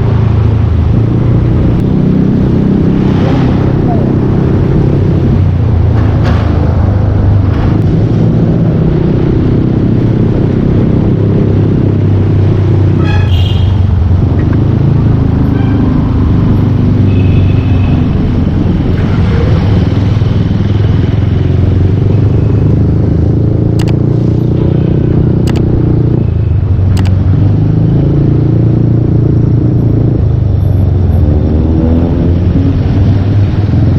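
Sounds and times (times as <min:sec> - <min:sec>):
sharp clicks: 0:23.7 - 0:24.0, 0:25.4 - 0:25.7, 0:26.9 - 0:27.2.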